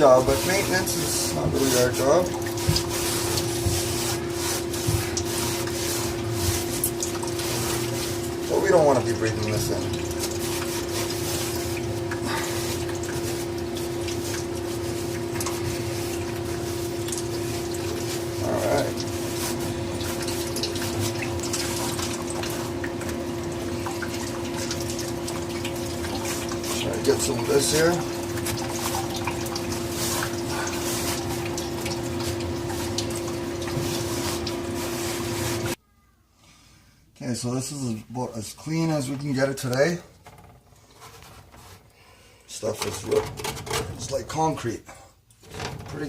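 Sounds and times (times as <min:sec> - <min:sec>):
faint scrubbing scrapes: 0:00.0 - 0:22.7, 0:26.1 - 0:35.8, 0:40.8 - 0:41.9
water running into reservoir: 0:00.0 - 0:35.8, 0:42.5 - 0:44.7.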